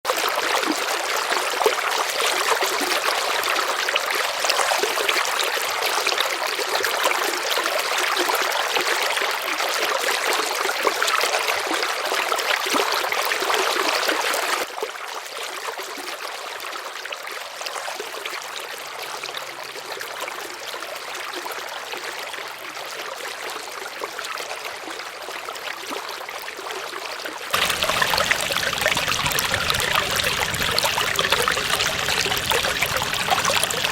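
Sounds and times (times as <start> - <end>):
river water rushing over stones: 27.5 - 33.9.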